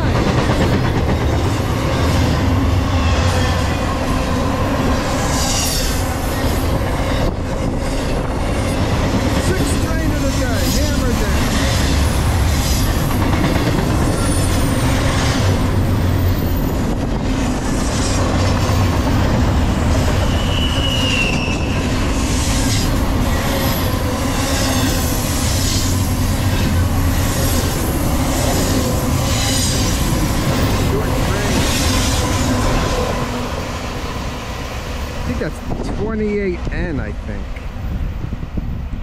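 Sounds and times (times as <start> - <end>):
rhythmic clickety-clack: 0.0 - 2.3, 7.4 - 15.6
freight train rumbling past: 0.0 - 39.0
high-pitched squeal: 20.0 - 33.4.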